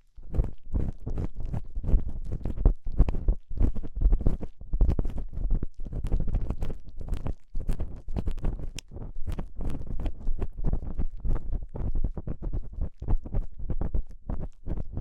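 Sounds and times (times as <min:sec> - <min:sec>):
scratching and rubbing on microphone: 0:00.0 - 0:15.0.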